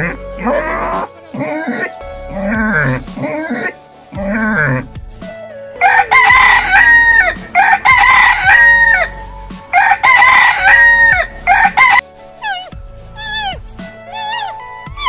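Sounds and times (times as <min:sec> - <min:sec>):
rooster crowing: 0:05.8 - 0:09.1, 0:09.7 - 0:12.0.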